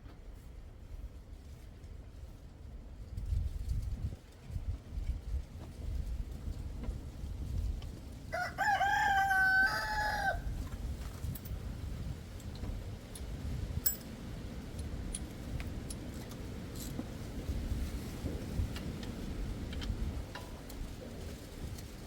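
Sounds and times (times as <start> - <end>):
rooster crowing: 8.3 - 10.6.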